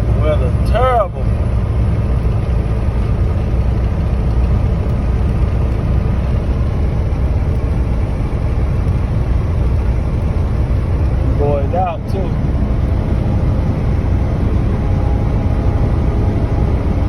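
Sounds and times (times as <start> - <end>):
diesel truck engine rumble: 0.0 - 17.0
road noise: 0.0 - 17.0.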